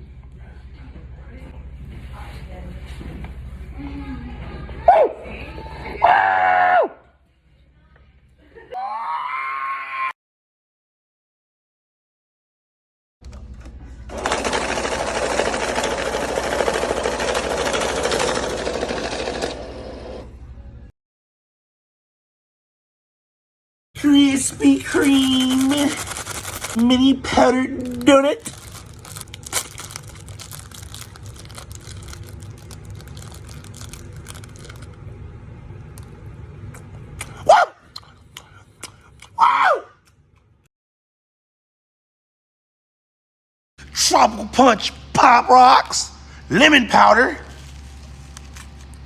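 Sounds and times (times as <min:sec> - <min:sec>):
machine rattling rapidly: 0:14.1 - 0:20.2, 0:24.9 - 0:26.8
person chewing food: 0:36.7 - 0:39.4.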